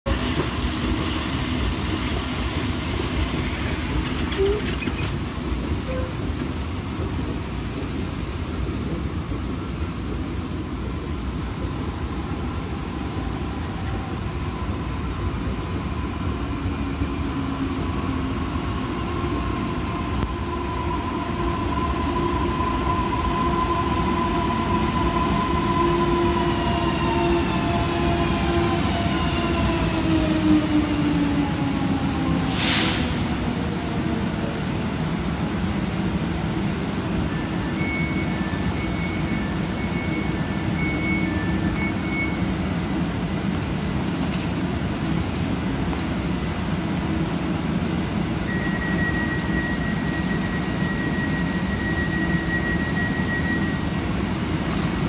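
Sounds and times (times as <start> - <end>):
electric train braking: 48.4 - 54.1.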